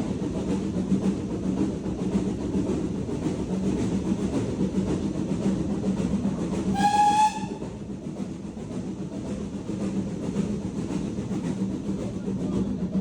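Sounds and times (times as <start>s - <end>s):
rail clatter: 0.0s - 13.0s
steam train rumble: 0.0s - 13.0s
steam locomotive whistle toot: 6.7s - 7.7s.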